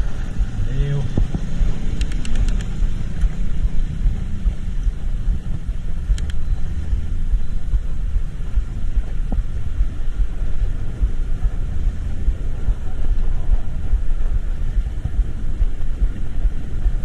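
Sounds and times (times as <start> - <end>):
vehicle rumble in traffic: 0.0 - 17.0
wind buffeting microphone: 0.0 - 17.0
faint clicks: 2.0 - 3.4, 5.5 - 6.7.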